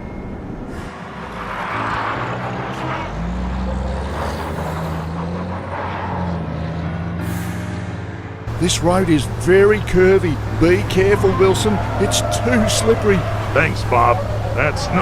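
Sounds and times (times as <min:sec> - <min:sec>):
rush of driving: 0:00.6 - 0:15.0
truck engine hum: 0:08.3 - 0:15.0.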